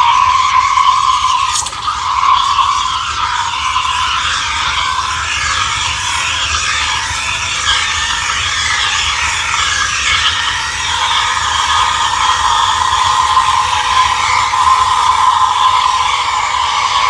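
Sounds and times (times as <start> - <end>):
steam wand hissing: 0.0 - 17.0.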